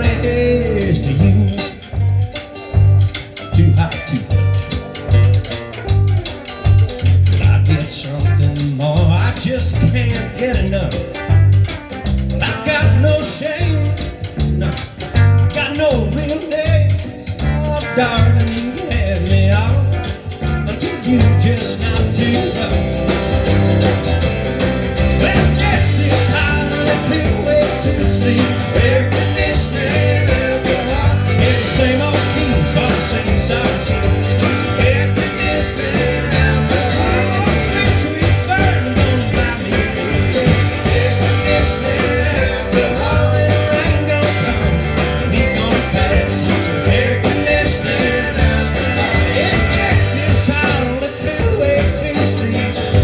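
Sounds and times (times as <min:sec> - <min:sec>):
live country-rock band playing: 0:00.0 - 0:53.0.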